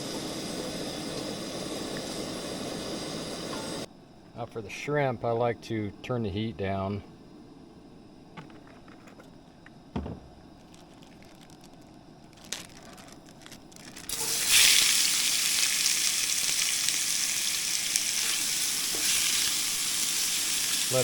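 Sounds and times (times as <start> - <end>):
light knocks: 9.9 - 10.4
shrimp sizzling in hot oil: 13.8 - 21.0.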